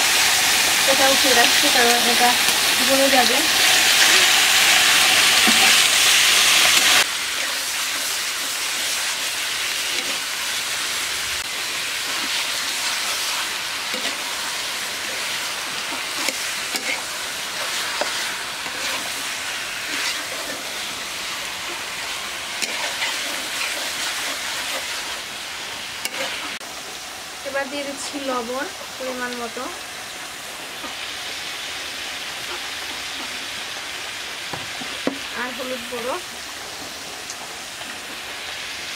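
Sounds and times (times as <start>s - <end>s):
chicken sizzling in hot oil: 0.0s - 38.9s
metal spatula scraping pan: 15.1s - 21.0s, 21.7s - 25.2s, 26.0s - 26.6s.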